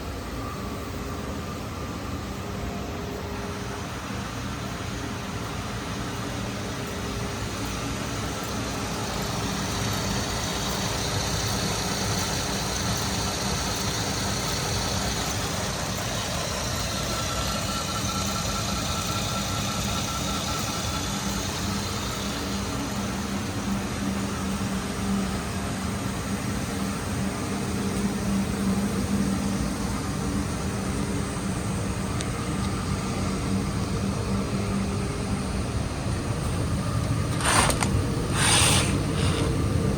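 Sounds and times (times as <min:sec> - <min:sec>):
car engine idling: 0:05.5 - 0:25.0.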